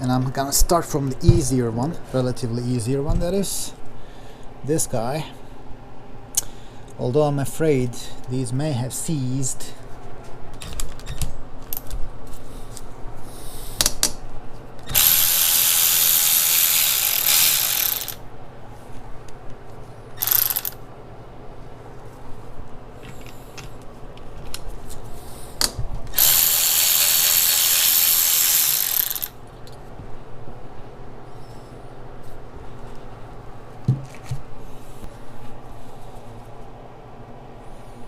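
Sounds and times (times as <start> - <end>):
ratchet wrench clicking: 14.9 - 18.2, 20.2 - 20.8, 26.2 - 29.4.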